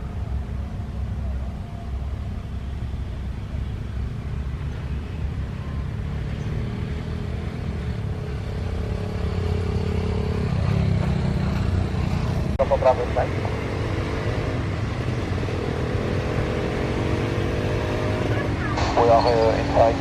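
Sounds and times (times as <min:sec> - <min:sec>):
low engine rumble: 0:00.0 - 0:06.5, 0:07.4 - 0:13.8, 0:18.2 - 0:20.0.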